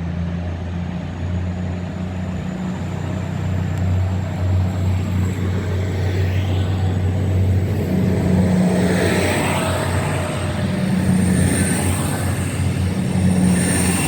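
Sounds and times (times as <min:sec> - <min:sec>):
train diesel engines droning: 0:00.0 - 0:14.0.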